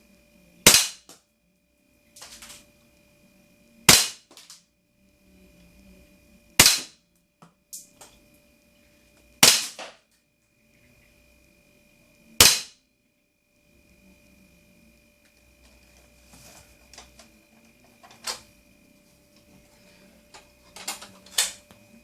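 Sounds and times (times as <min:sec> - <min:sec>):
airsoft rifle shots: 0:00.7 - 0:01.1, 0:03.9 - 0:04.5, 0:06.6 - 0:07.0, 0:09.4 - 0:10.0, 0:12.4 - 0:12.8.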